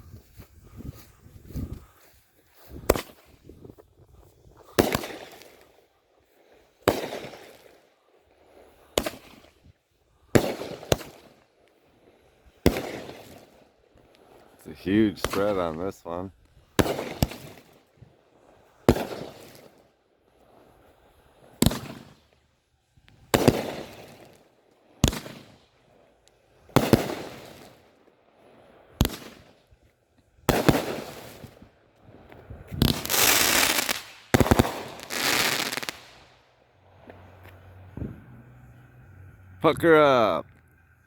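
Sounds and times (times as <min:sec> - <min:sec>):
dense firework crackling: 0:01.8 - 0:39.0
firework shots with crackle: 0:02.7 - 0:03.5, 0:04.5 - 0:05.9, 0:06.5 - 0:11.5, 0:12.4 - 0:15.8, 0:16.6 - 0:18.0, 0:18.6 - 0:22.4, 0:23.0 - 0:28.0, 0:28.6 - 0:36.7.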